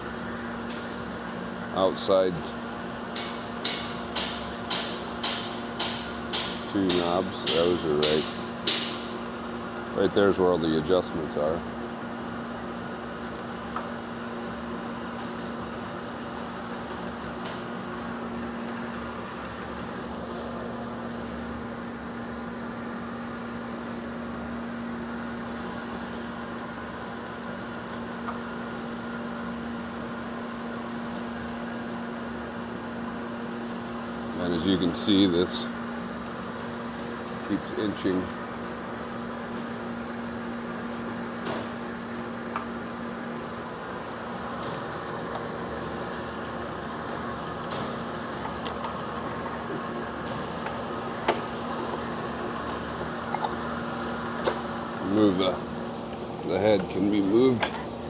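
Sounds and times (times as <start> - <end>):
grinder motor humming: 44.6 - 58.0.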